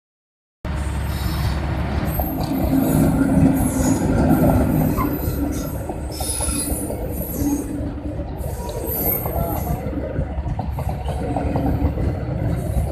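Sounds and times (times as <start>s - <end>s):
train rumbling on rails: 0.7s - 12.9s
wheel squeal: 3.6s - 7.7s, 8.5s - 9.8s.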